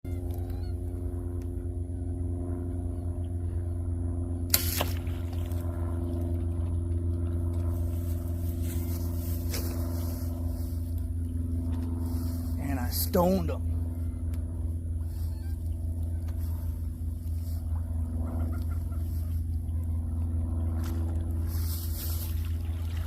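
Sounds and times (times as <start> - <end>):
low engine drone: 0.0 - 23.0
bow shot snap: 4.5 - 5.4.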